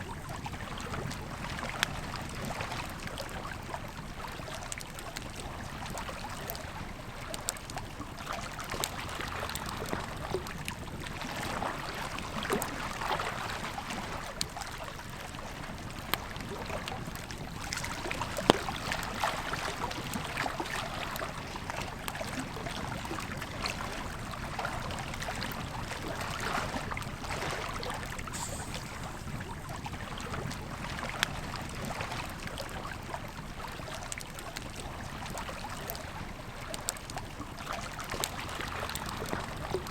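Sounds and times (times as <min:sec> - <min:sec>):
river flowing: 0:16.5 - 0:31.2.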